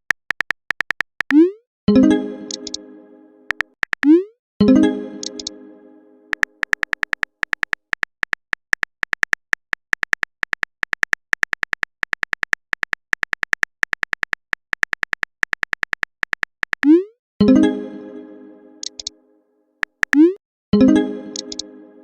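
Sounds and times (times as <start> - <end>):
keyboard typing clicks: 0.0 - 1.6, 2.5 - 2.8, 3.5 - 4.2, 5.2 - 5.5, 6.3 - 17.1, 18.8 - 19.1, 19.8 - 20.4, 21.3 - 21.7.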